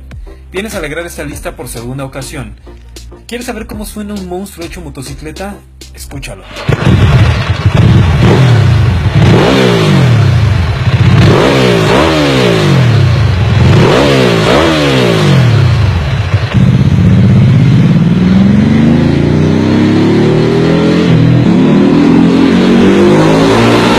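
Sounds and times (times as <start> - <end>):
motorcycle accelerating: 6.5 - 23.9
motorcycle engine revving: 6.5 - 23.9.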